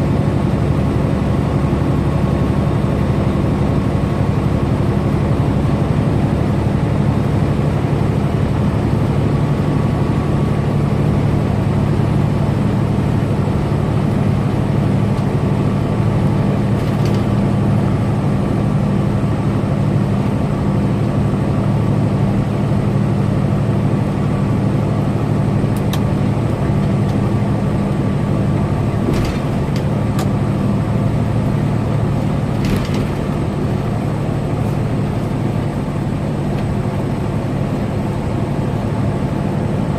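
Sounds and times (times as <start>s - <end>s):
truck diesel engine and road noise: 0.0s - 39.9s.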